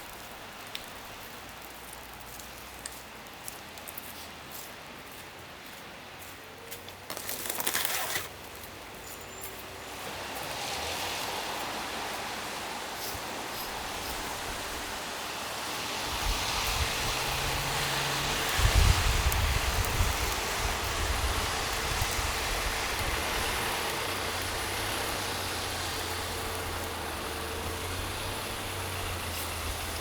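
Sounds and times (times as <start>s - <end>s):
brief rustling: 6.8s - 8.4s
tyre hiss: 10.4s - 30.0s
low engine rumble: 16.2s - 30.0s.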